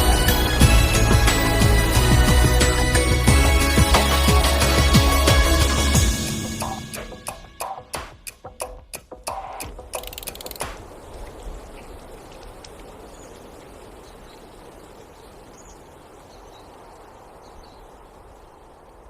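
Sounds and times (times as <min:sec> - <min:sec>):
drum beats: 0:00.0 - 0:10.9
rushing water: 0:00.0 - 0:19.0.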